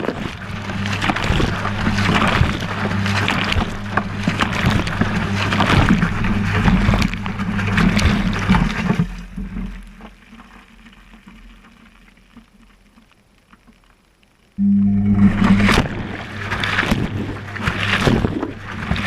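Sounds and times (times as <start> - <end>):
washing machine motor hum: 0.0 - 9.6, 14.6 - 19.0
water sloshing in washing machine: 0.0 - 10.0, 15.2 - 19.0.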